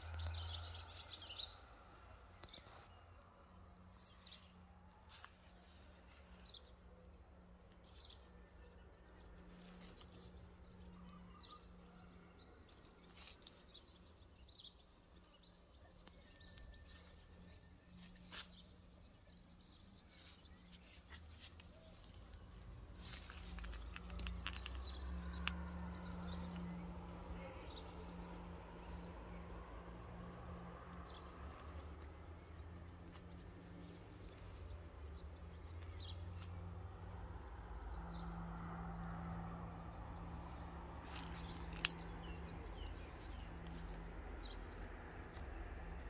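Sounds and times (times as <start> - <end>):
small birds chirping: 39.0 - 46.0.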